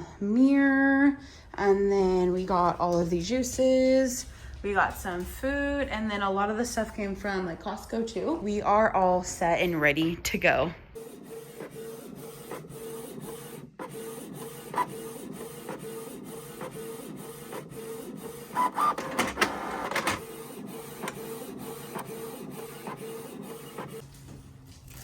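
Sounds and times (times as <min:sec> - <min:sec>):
small machine whirring: 0:11.0 - 0:24.0.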